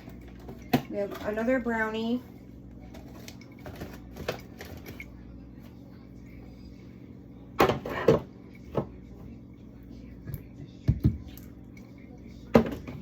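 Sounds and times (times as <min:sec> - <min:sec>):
food containers being handled: 0:02.9 - 0:05.0.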